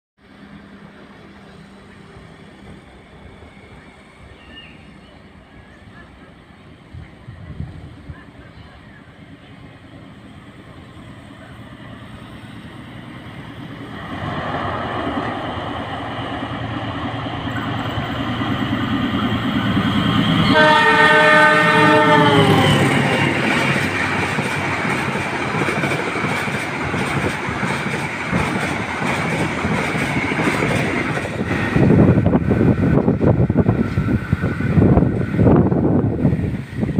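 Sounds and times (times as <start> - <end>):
locomotive engine and wheel noise: 0.2 - 36.9
train horn: 20.3 - 23.4.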